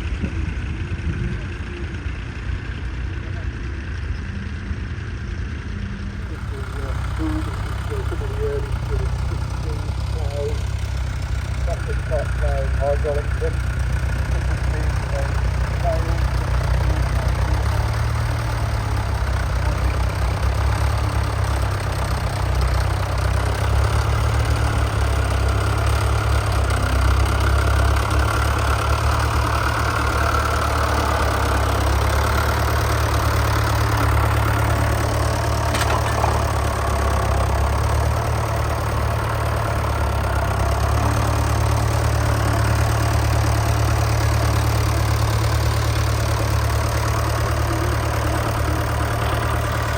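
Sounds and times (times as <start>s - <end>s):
heavy diesel engine running: 0.0s - 49.9s.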